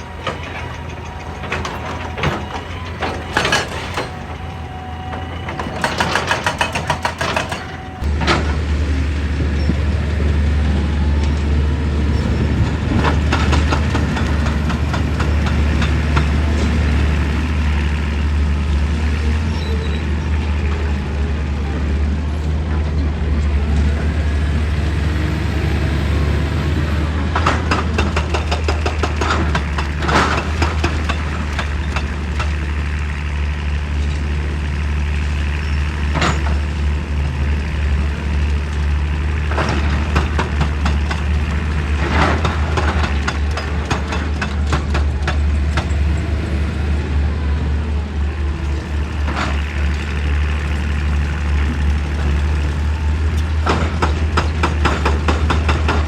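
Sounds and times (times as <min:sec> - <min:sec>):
excavator diesel engine running: 0:00.0 - 0:56.0
sharp knocks and clanks: 0:05.4 - 0:08.8, 0:27.3 - 0:32.7, 0:38.8 - 0:46.1, 0:53.4 - 0:56.0.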